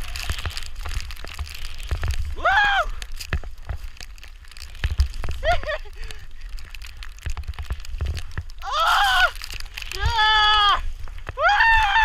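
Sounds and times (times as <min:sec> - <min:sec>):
person whooping and hollering: 0:02.3 - 0:03.1, 0:08.6 - 0:12.0.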